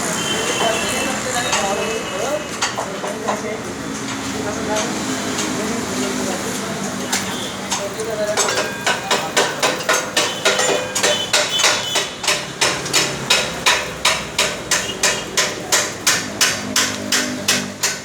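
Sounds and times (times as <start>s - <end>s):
hammer on metal: 7.1s - 18.0s.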